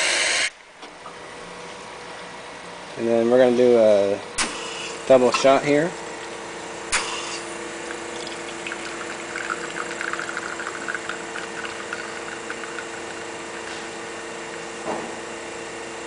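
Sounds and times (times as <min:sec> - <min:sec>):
espresso machine humming: 0:04.6 - 0:16.0
espresso trickling into cup: 0:07.8 - 0:14.8.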